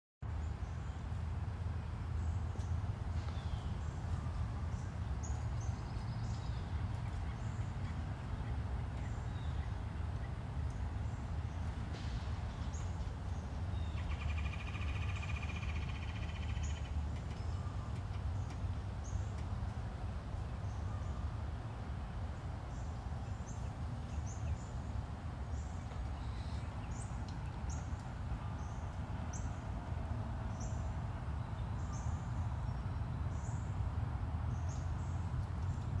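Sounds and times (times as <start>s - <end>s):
birds chirping: 25.5s - 29.6s.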